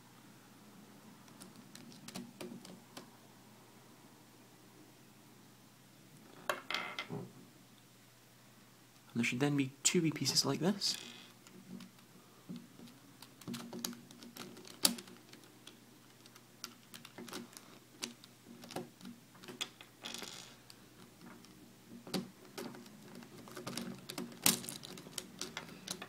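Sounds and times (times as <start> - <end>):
plastic puzzle pieces clicking: 1.3 - 2.8, 12.8 - 26.0.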